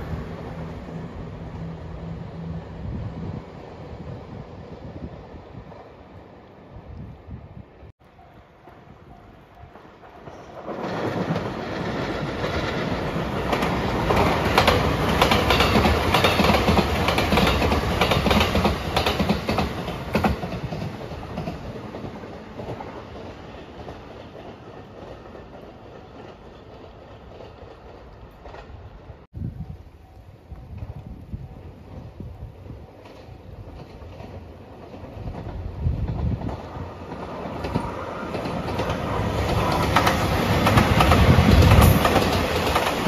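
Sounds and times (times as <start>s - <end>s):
train wheel and rail rumble: 0.0s - 43.0s
wheels clicking over rail joints: 8.7s - 29.3s, 30.5s - 43.0s.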